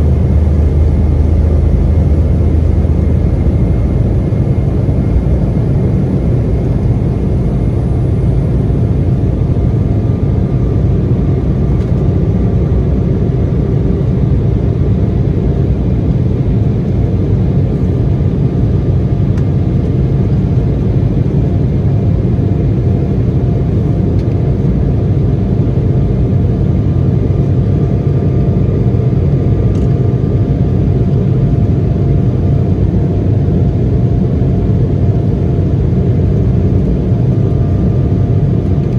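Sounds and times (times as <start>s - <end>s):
faint engine whine: 0.0s - 38.9s
jet engine rumble in cabin: 0.0s - 38.9s.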